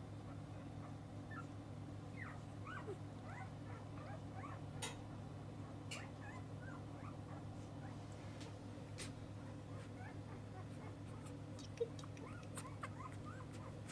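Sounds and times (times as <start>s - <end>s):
puppies squeaking and whimpering: 1.3s - 4.9s, 5.6s - 8.0s, 9.6s - 13.9s.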